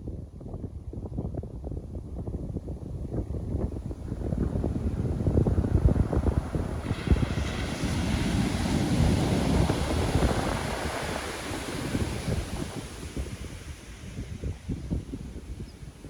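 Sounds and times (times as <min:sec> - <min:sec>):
wind buffeting microphone: 0:00.0 - 0:16.0
wave breaking: 0:03.7 - 0:16.0.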